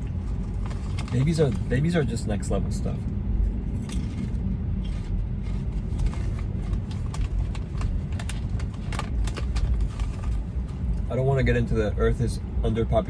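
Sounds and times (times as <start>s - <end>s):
tyre and engine rumble: 0.0s - 13.0s.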